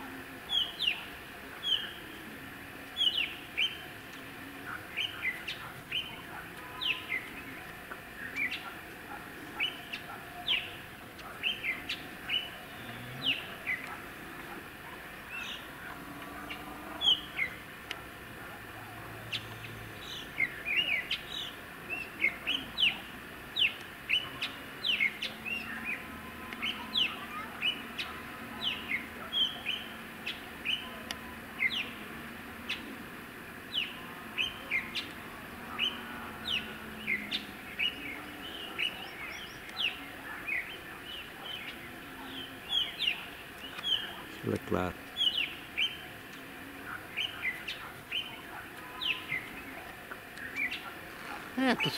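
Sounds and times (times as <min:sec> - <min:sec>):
small birds chirping: 0:00.1 - 0:51.9.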